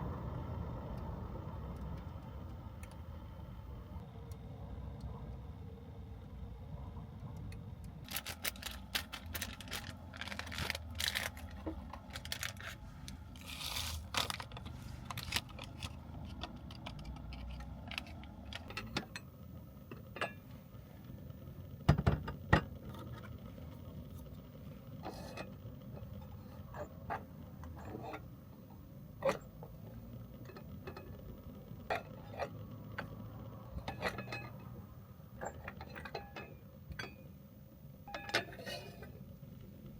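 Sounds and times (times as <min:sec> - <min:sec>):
low steady rumble: 0:00.0 - 0:39.9
objects clicking and rattling: 0:08.1 - 0:12.8, 0:13.4 - 0:19.1.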